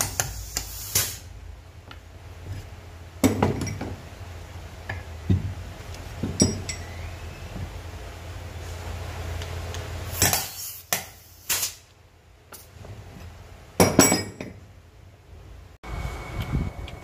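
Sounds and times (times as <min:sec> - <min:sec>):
low steady hum: 0:11.9 - 0:17.0.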